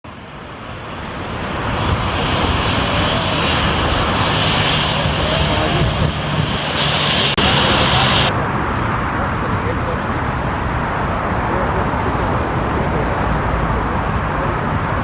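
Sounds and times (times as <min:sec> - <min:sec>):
jet airliner passing low: 0:00.1 - 0:15.0.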